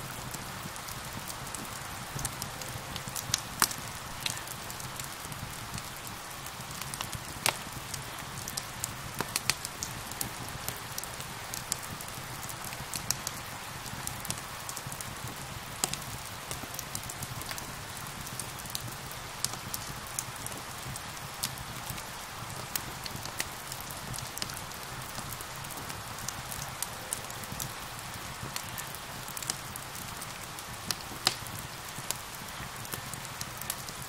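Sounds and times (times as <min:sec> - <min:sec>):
rain hiss: 0:00.0 - 0:34.0
wood fire crackling and popping: 0:00.1 - 0:34.0.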